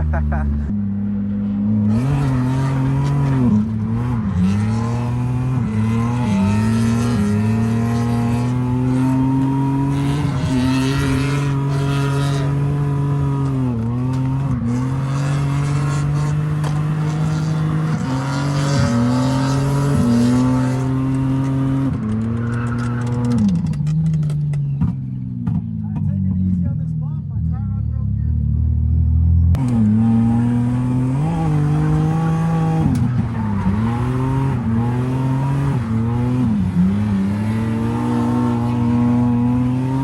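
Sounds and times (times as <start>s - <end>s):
car engine at high revs: 0.0s - 26.8s, 28.5s - 40.0s
tyre squeal: 22.0s - 24.3s.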